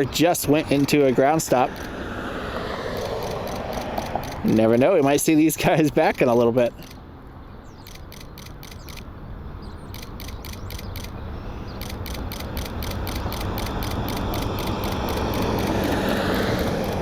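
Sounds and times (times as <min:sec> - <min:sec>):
jet airliner engine: 0:00.0 - 0:04.6, 0:10.0 - 0:17.0
rapid even clicking: 0:00.7 - 0:02.0, 0:02.8 - 0:04.6, 0:05.9 - 0:07.0, 0:07.8 - 0:09.1, 0:09.9 - 0:17.0.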